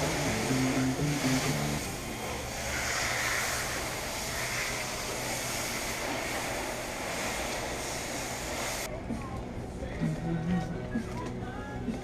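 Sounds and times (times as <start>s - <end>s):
water spraying onto car: 0.0s - 8.9s.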